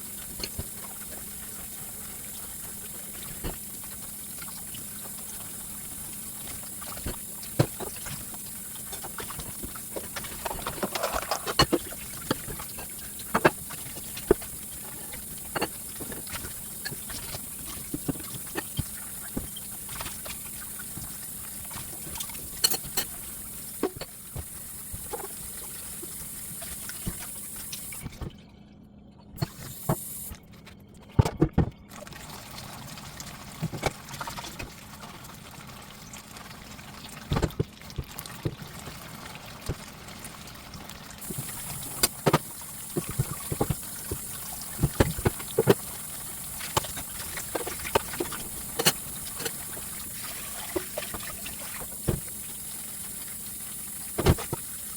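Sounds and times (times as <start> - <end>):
steady hum and hiss: 0.0 - 28.3, 29.3 - 30.6, 38.1 - 54.9
water trickling: 0.0 - 28.8, 31.9 - 54.9
kitchen knocks and clicks: 31.2 - 31.8.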